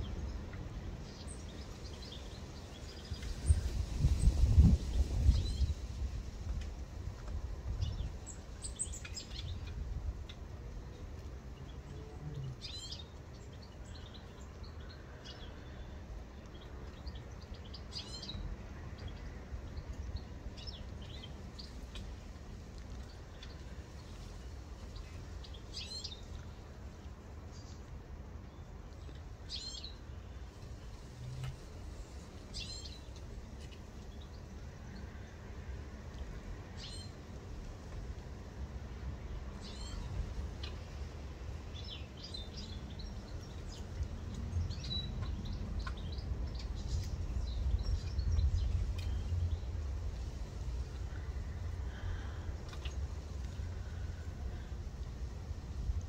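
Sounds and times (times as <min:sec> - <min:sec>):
low background rumble: 0:00.0 - 0:56.0
small songbird chirping: 0:07.6 - 0:35.2, 0:36.7 - 0:37.2, 0:39.3 - 0:54.4.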